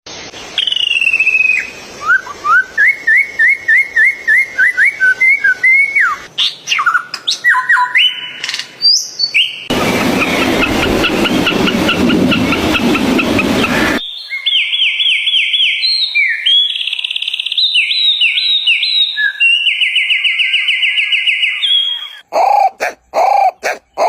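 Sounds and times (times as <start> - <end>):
birds whistling: 0.4 - 24.0
bird chirping rapidly: 6.4 - 16.8.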